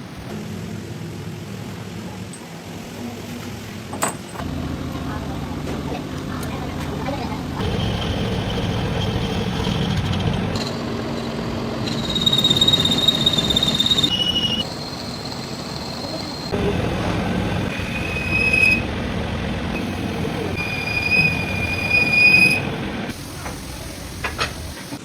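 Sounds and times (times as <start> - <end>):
high-pitched whine: 7.6 - 23.1
heavy machinery running: 7.6 - 23.7.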